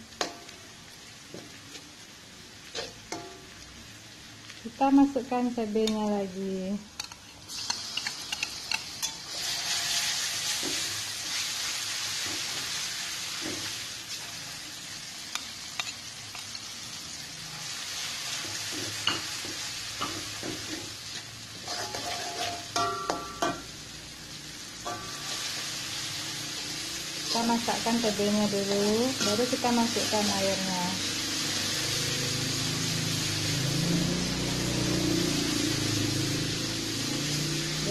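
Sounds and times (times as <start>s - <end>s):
paste sizzling in hot oil: 0.0s - 37.9s
metal spatula scraping wok: 7.0s - 12.8s, 20.0s - 23.7s, 24.8s - 26.0s, 27.1s - 30.6s.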